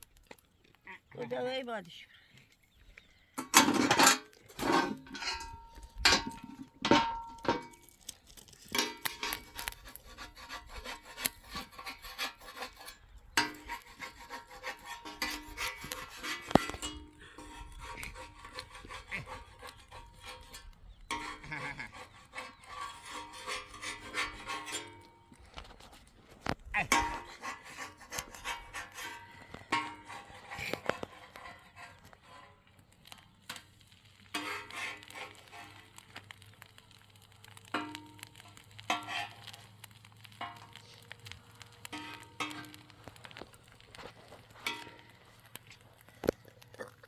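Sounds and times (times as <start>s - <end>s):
rough scraping and rubbing: 3.6s - 33.2s, 34.0s - 37.2s, 38.3s - 41.1s.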